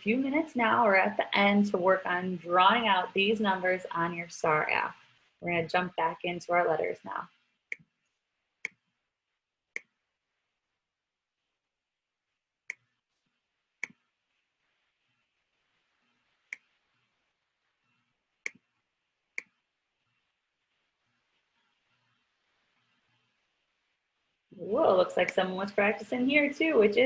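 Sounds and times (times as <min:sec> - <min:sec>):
faint room noise: 0:00.0 - 0:27.0
computer mouse clicks: 0:18.4 - 0:18.7, 0:19.4 - 0:19.6.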